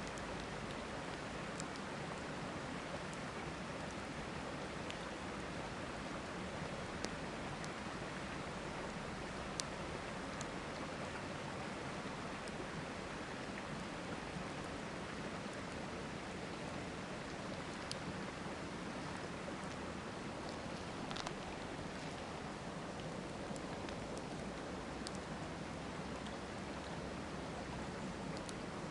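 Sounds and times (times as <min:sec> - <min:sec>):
river rushing: 0:00.0 - 0:28.9
campfire crackling and popping: 0:08.8 - 0:11.4, 0:17.2 - 0:27.0, 0:27.8 - 0:28.9.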